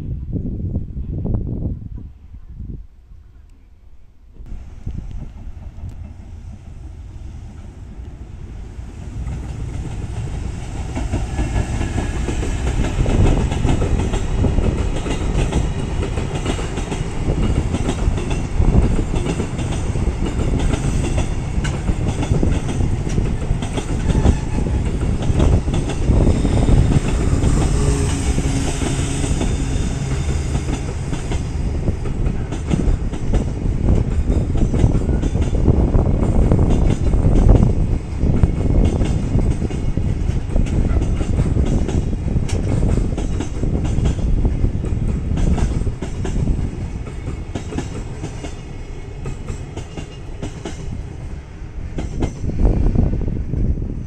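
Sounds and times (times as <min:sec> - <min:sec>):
freight train passing: 0:04.2 - 0:54.0.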